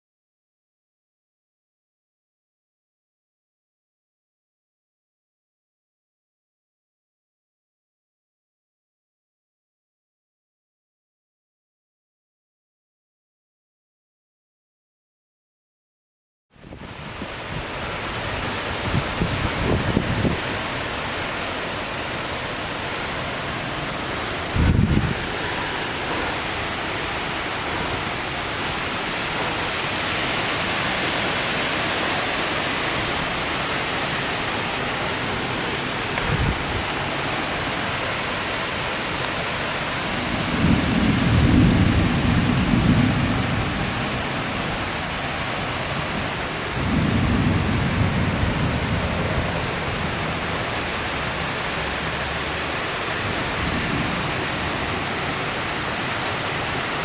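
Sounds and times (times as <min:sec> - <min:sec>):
heavy rain: 0:16.6 - 0:57.0
thunder rolling: 0:23.2 - 0:30.9, 0:33.0 - 0:38.0, 0:40.0 - 0:51.6.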